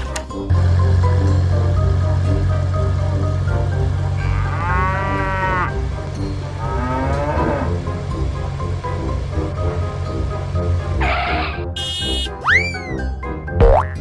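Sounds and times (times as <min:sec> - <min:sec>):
background music: 0:00.0 - 0:14.0
cartoon cow mooing: 0:04.1 - 0:05.8.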